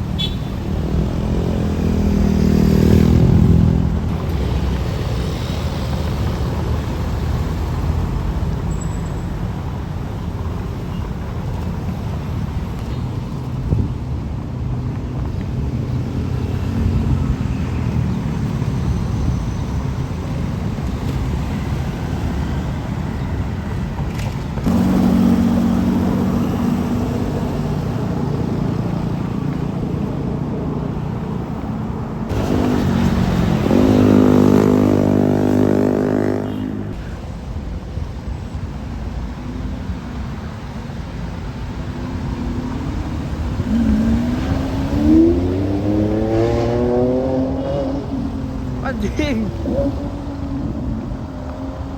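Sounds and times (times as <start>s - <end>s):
road traffic rumble: 0.0s - 51.9s
engine revving: 24.6s - 27.9s, 32.3s - 37.0s, 43.4s - 48.8s.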